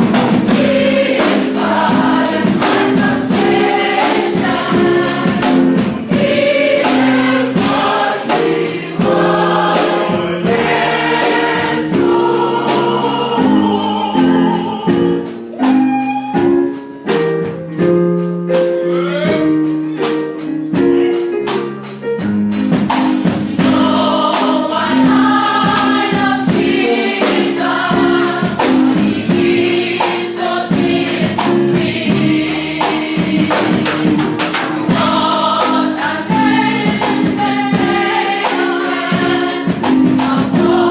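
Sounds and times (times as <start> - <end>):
percussive beat: 0.0 - 14.0, 20.8 - 40.9
choir singing in harmony: 0.0 - 15.8, 23.2 - 40.9
instrumental accompaniment: 0.0 - 40.9.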